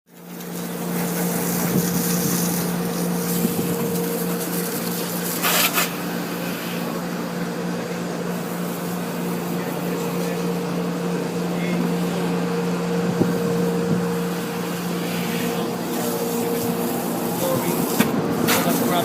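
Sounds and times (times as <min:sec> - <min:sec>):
car wash machinery humming: 0:00.1 - 0:19.0
hissing water spray: 0:00.2 - 0:07.0, 0:14.2 - 0:19.0.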